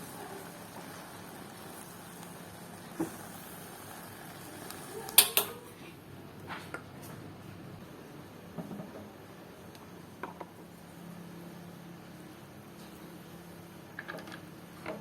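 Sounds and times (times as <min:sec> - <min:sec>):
cookware knocking and clacking: 0:05.2 - 0:05.7.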